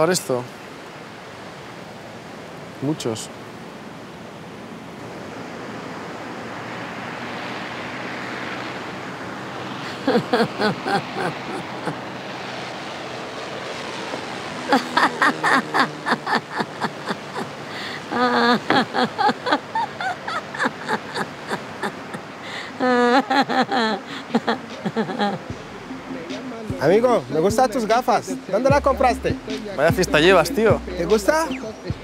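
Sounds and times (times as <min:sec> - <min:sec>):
surf washing on beach: 0:00.0 - 0:28.8
elderly woman laughing: 0:09.8 - 0:12.1, 0:14.7 - 0:25.5.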